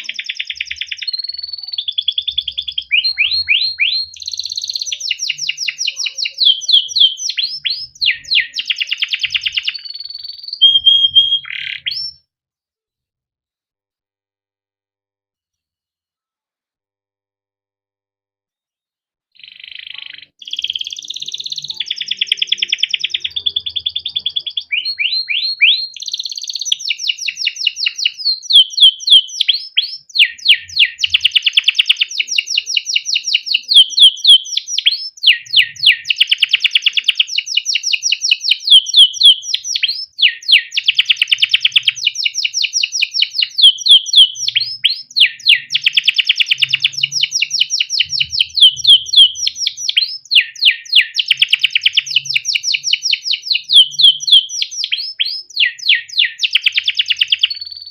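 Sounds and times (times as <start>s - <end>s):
canary singing: 0.0s - 12.2s, 19.4s - 57.9s.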